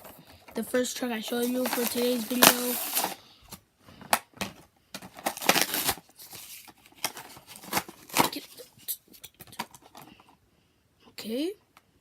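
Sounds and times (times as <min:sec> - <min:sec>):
plastic and cardboard crinkling: 0:00.0 - 0:10.3
packaging tearing: 0:01.3 - 0:03.2, 0:05.0 - 0:08.5.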